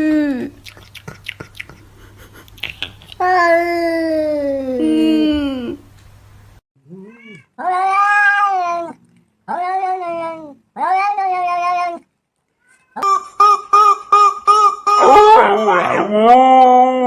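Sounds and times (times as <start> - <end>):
cat meowing: 6.9 - 13.0.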